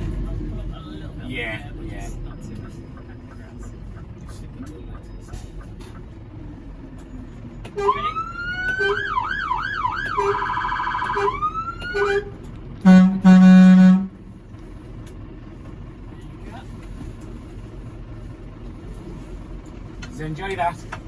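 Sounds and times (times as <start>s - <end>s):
fire engine siren: 7.7s - 14.2s
air horn blasts: 7.8s - 9.3s, 10.0s - 14.2s.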